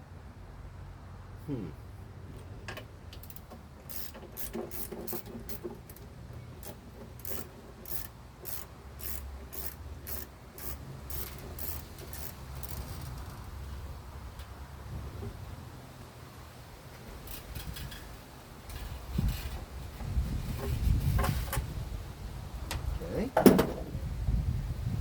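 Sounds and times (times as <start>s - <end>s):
wrench clicking on metal fitting: 3.2s - 6.0s, 6.6s - 13.2s.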